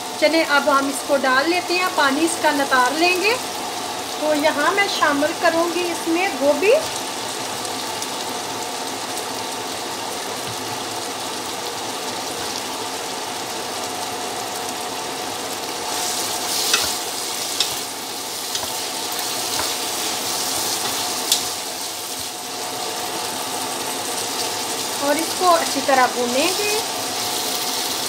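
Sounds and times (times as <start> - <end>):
meat sizzling in a pan: 0.0 - 28.0
spatula scraping pan: 15.9 - 22.4
spatula knocking on pan: 18.5 - 20.0.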